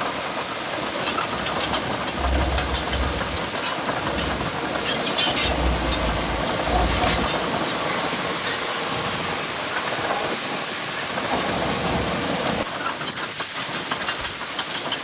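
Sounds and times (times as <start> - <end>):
heavy machinery noise: 0.0 - 15.0
machinery clanking and rattling: 0.1 - 9.1, 11.1 - 15.0
heavy low rumbles: 1.3 - 8.1.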